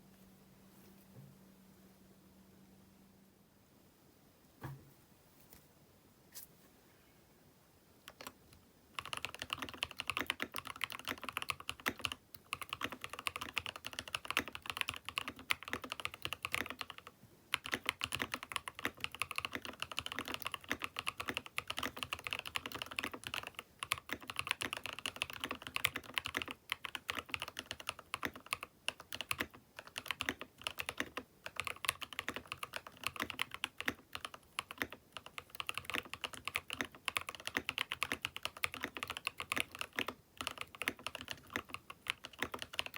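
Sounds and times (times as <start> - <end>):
mechanical keyboard typing: 9.0 - 42.9.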